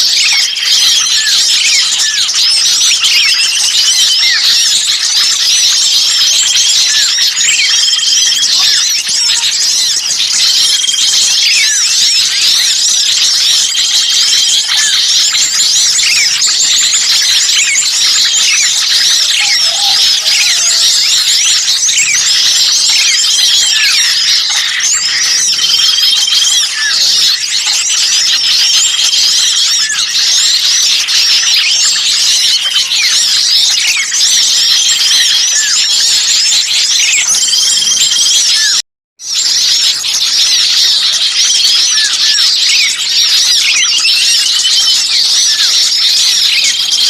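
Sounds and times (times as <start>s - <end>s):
many small birds chirping: 0.0s - 47.0s.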